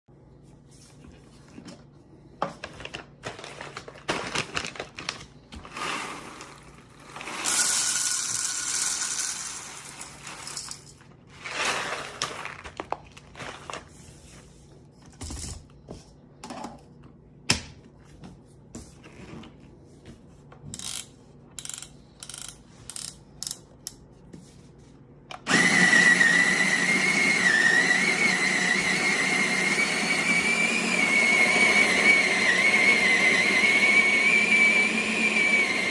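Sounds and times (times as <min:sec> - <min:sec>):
coffee grinder motor whining: 0:05.7 - 0:10.8, 0:25.5 - 0:35.9
clicks and rattles of handling grinder: 0:20.8 - 0:23.6.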